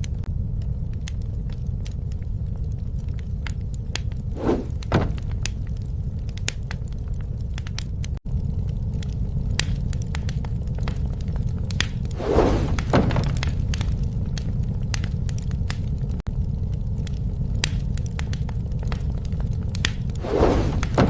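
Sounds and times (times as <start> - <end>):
bonfire roaring: 0.0 - 21.0
burning wood crackling and popping: 0.0 - 21.0
fire rushing bursts: 4.2 - 6.1, 11.7 - 21.0.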